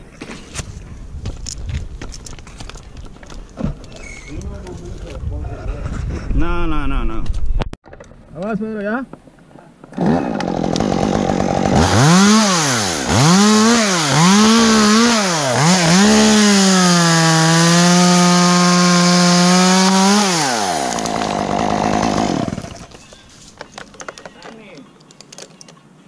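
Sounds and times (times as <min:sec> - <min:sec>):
chainsaw revving: 0:09.9 - 0:22.9.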